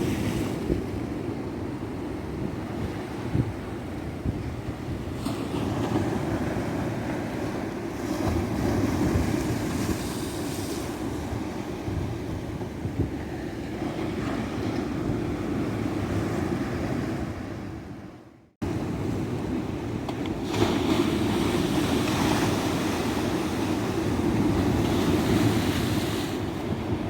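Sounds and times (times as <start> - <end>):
ocean waves breaking: 5.0 - 18.0, 18.6 - 27.0.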